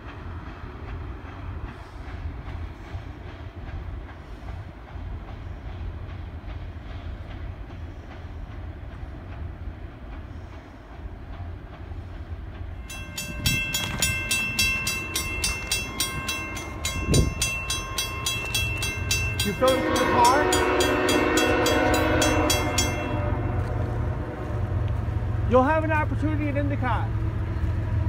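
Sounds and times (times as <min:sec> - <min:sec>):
distant freight train rumble: 0:00.0 - 0:28.0
crossing bell ringing: 0:12.8 - 0:23.8.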